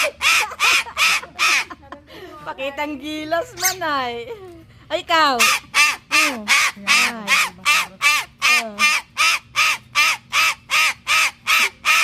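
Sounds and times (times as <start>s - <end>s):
parrot harsh calls: 0.0s - 1.7s, 3.6s - 3.8s, 5.3s - 12.0s.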